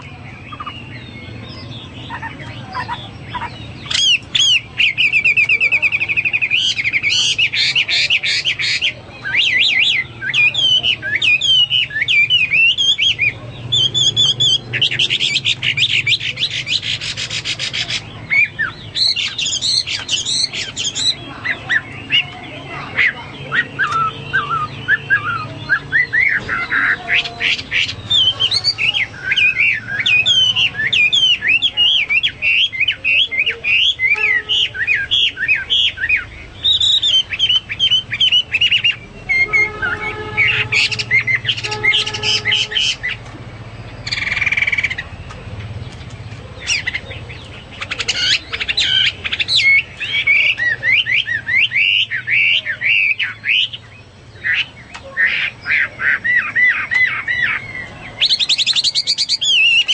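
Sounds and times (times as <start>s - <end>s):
bird singing whistled phrases: 0.0s - 16.9s, 17.8s - 43.2s, 47.8s - 53.8s, 54.4s - 59.9s
harsh bird note: 38.6s - 43.2s.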